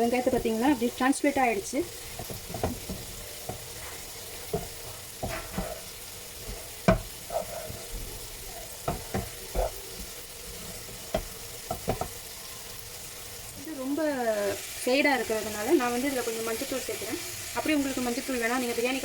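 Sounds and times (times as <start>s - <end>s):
spoon stirring against pan: 0.0s - 13.4s
food sizzling in hot oil: 0.0s - 19.0s.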